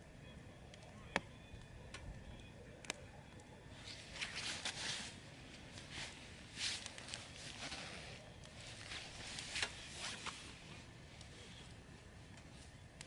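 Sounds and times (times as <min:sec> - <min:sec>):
rustling and handling noises: 0:03.7 - 0:12.8.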